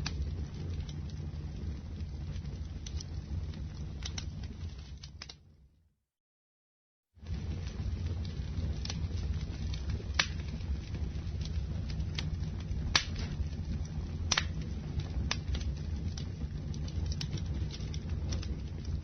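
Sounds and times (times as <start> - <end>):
burning wood crackling and popping: 0.0 - 5.6, 7.2 - 19.0
low rumble of flames: 0.0 - 5.8, 7.1 - 19.0.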